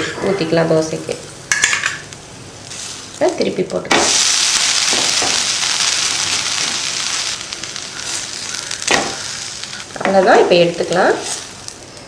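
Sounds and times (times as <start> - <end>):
batter sizzling on hot pan: 1.4 - 12.0.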